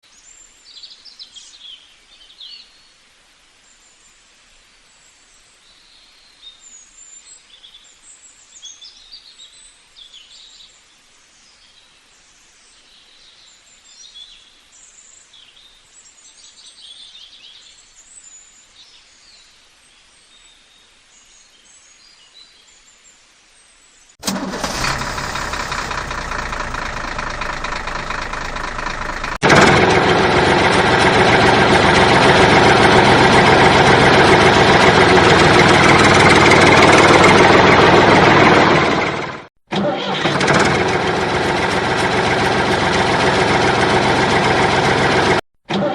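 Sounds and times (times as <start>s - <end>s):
loud engine-like drone: 24.2s - 45.4s.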